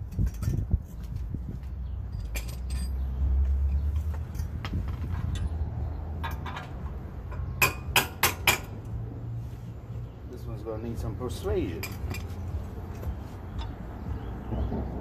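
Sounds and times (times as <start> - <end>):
metal tools clinking on steel: 0.0 - 1.0, 2.0 - 8.8, 11.3 - 13.8.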